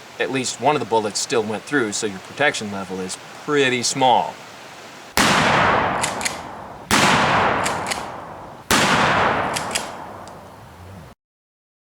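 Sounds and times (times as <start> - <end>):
rifle shots echoing: 5.2 - 10.6
faint high clicks: 6.0 - 6.5, 7.6 - 8.2, 9.5 - 10.5.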